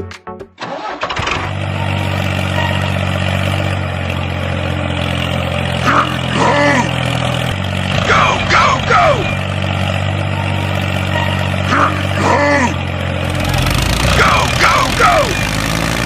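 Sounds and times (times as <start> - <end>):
engine running with low hum: 0.8 - 16.0
voice-like cries: 5.8 - 7.0, 8.0 - 9.4, 11.7 - 12.9, 14.1 - 15.5.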